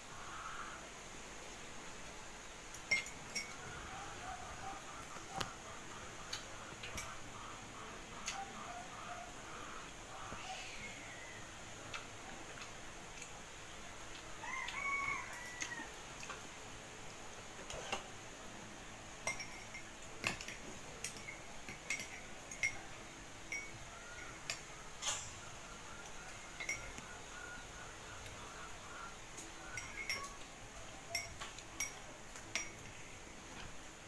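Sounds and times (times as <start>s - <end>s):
cutlery clinking on ceramic mug: 2.8s - 3.6s, 19.2s - 22.8s, 26.5s - 27.0s, 29.7s - 30.4s, 31.1s - 33.0s
rooster crowing: 14.3s - 16.0s.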